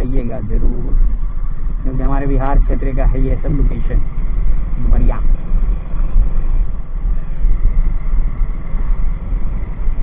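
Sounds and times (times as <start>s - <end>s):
motorcycle engine rumble: 0.0s - 10.0s
wind buffeting microphone: 0.0s - 10.0s.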